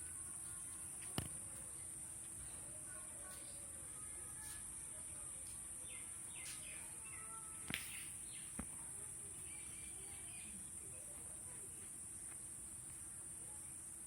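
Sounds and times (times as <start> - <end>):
high-pitched hiss: 0.0 - 14.0
faint bird chirps: 5.8 - 8.6.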